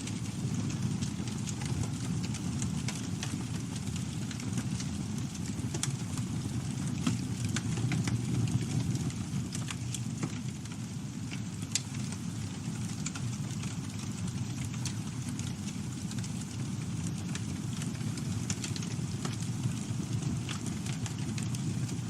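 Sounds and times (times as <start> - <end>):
low rumble of flames: 0.0 - 22.0
wood crackling and popping: 0.0 - 22.0.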